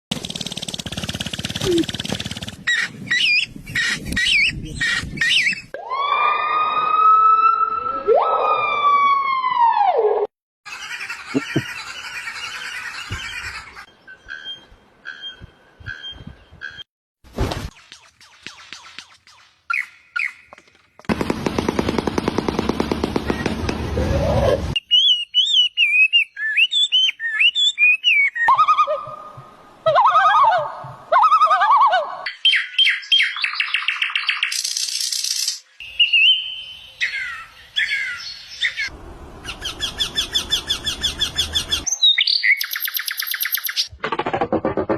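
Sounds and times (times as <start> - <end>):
bird rapid rattling call: 0.1 - 2.9
long siren-like wail: 5.8 - 10.2
bird chirps: 11.3 - 16.9, 17.8 - 20.8, 24.8 - 28.9, 32.3 - 43.9
squawking bird calls: 35.8 - 43.9.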